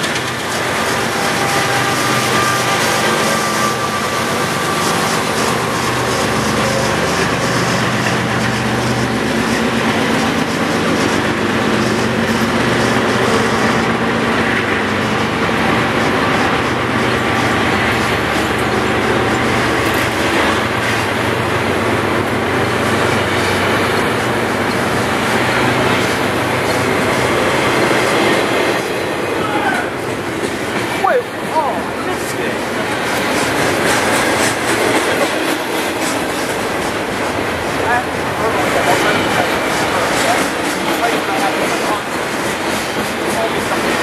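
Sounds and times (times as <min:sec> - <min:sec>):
wheels clicking over rail joints: 0:00.0 - 0:03.3, 0:05.3 - 0:28.9
train wheels rumbling on rail: 0:00.0 - 0:44.0.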